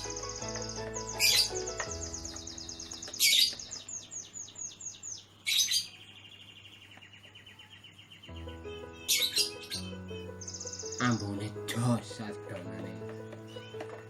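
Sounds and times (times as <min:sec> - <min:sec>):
soft music: 0:00.0 - 0:05.1, 0:08.2 - 0:14.0
songbird sharp calls and trills: 0:00.0 - 0:11.8, 0:12.9 - 0:14.0.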